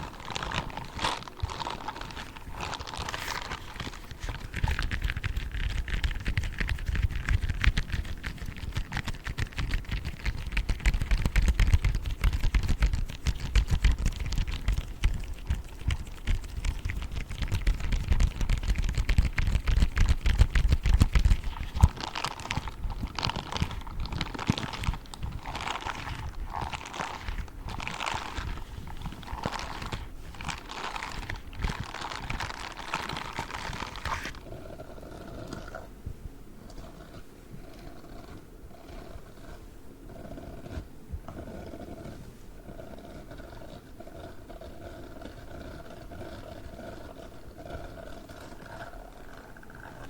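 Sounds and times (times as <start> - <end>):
gloves rubbing and tapping: 0.0 - 34.4.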